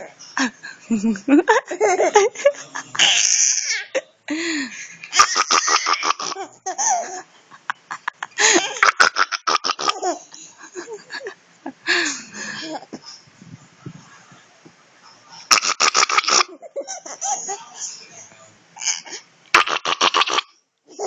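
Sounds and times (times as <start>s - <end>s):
baby giggling: 5.1s - 7.3s, 8.4s - 11.0s, 15.6s - 17.8s.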